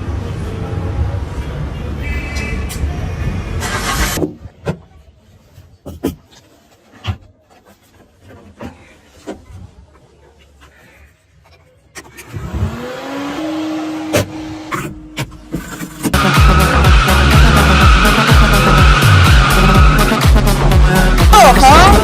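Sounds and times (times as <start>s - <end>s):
car engine speeding up: 12.2s - 15.0s, 16.1s - 22.0s.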